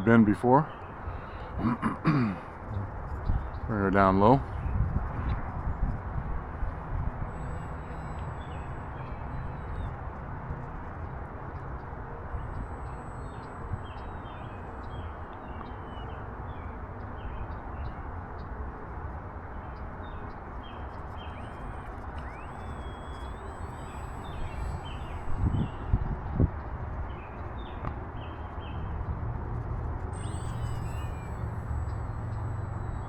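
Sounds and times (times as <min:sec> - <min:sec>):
birds chirping: 0:00.0 - 0:05.0, 0:07.2 - 0:18.0, 0:19.5 - 0:29.0, 0:30.1 - 0:33.0
wind rushing over microphone: 0:02.6 - 0:07.8, 0:24.4 - 0:30.1.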